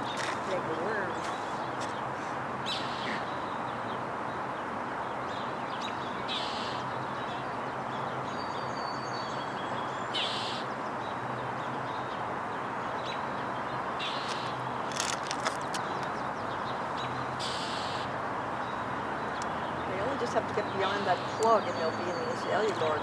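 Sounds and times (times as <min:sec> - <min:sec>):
harsh rasping bird calls: 0:00.0 - 0:03.4, 0:06.3 - 0:06.9, 0:10.1 - 0:10.7, 0:14.0 - 0:14.6, 0:16.9 - 0:18.1, 0:18.7 - 0:23.0
city noise hum: 0:00.0 - 0:23.0
high-pitched birdsong: 0:05.3 - 0:12.2, 0:15.7 - 0:23.0.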